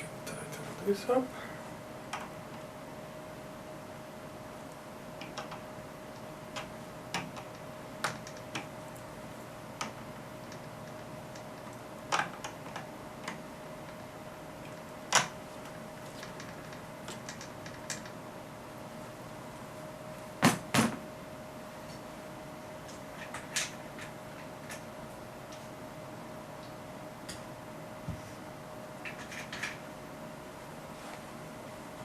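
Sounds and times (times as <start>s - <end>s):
faint steady whine: 0.0s - 32.0s.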